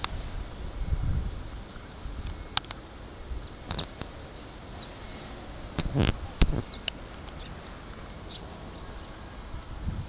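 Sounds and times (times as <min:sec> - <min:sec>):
outdoor background noise: 0:00.0 - 0:10.0
small bird chirps: 0:03.4 - 0:05.2, 0:05.8 - 0:09.0.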